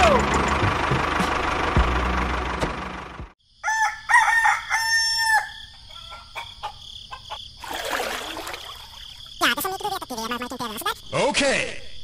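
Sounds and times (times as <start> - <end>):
rooster crowing: 3.5 - 7.5.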